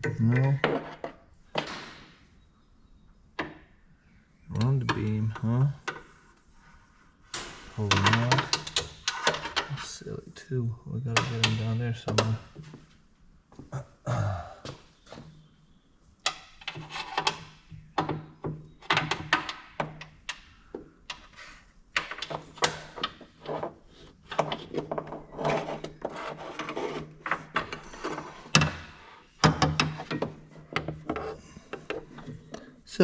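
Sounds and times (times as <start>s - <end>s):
cables knocking against metal: 27.4s - 32.7s.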